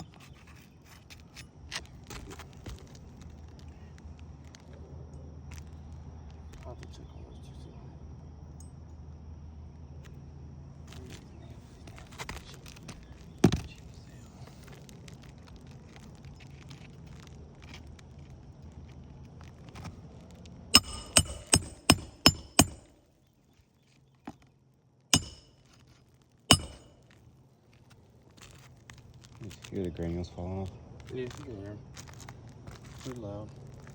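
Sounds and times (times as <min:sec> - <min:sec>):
metal tool striking roof: 0:20.8 - 0:23.0, 0:25.2 - 0:25.6, 0:26.5 - 0:26.9.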